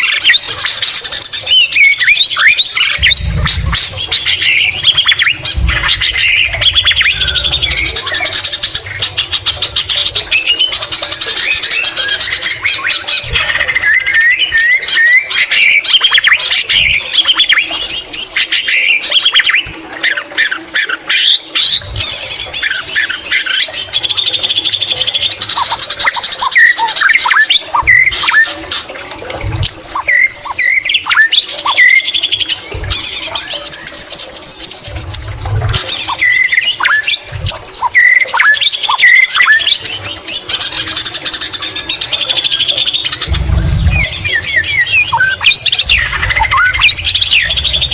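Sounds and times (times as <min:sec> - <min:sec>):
bird singing whistles and trills: 0:00.0 - 0:28.8, 0:29.6 - 0:47.9
low thumps: 0:02.9 - 0:10.9, 0:43.0 - 0:47.9.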